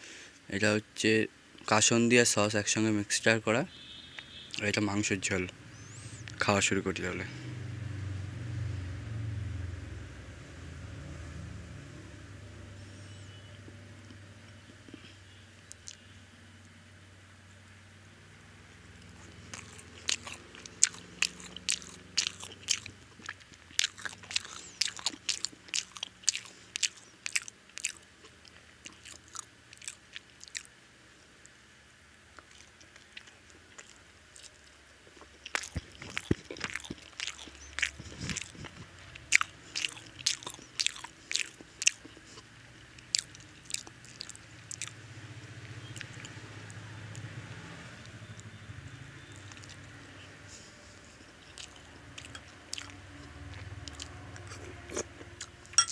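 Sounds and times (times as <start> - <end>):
chewing and crunching toast: 13.0 - 16.8, 18.6 - 31.6, 32.3 - 55.9.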